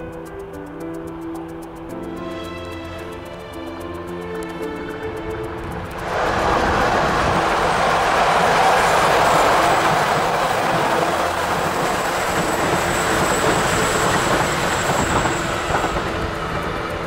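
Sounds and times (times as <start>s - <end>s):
train wheel and rail noise: 0.0s - 17.0s
thin high whine: 5.7s - 17.0s.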